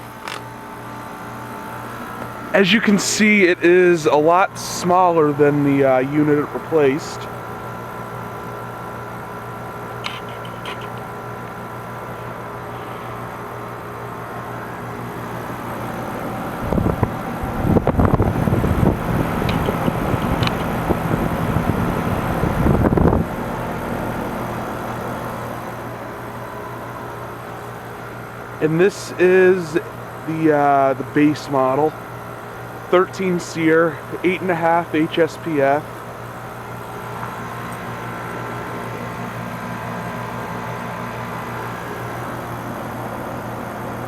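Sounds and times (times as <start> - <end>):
compressor hum: 0.0 - 44.0
fan whoosh: 15.2 - 23.6.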